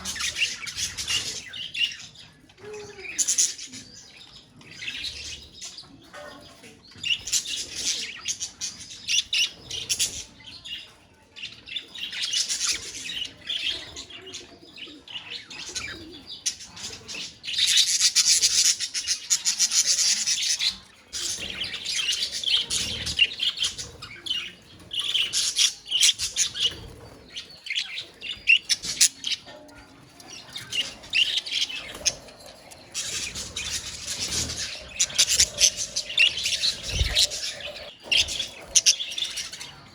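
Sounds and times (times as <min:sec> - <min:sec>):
budgerigars chattering and warbling: 0:00.0 - 0:02.3, 0:11.7 - 0:39.9.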